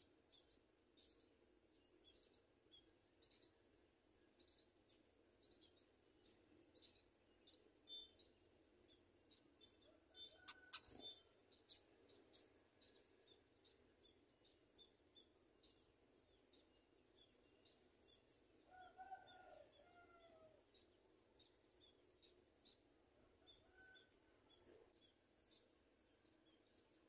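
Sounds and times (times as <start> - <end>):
short high bird chirps: 10.3 - 11.2.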